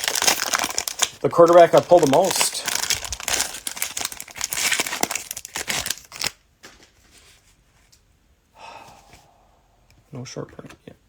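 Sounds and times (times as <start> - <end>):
cellophane wrapper crinkling and tearing: 0.0 - 6.4
soft rustle: 6.6 - 8.0.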